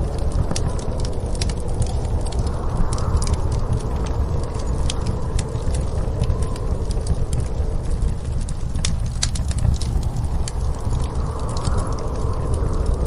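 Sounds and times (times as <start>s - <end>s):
faint wind howl: 0.0s - 13.0s
low rumble of storm wind: 0.0s - 13.0s
wood fire crackling and popping: 0.0s - 13.0s.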